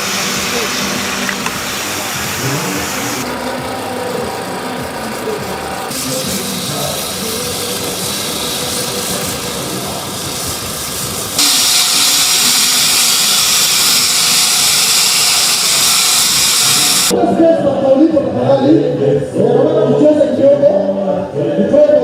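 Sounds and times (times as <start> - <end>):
loud hissing noise: 0.0 - 17.2.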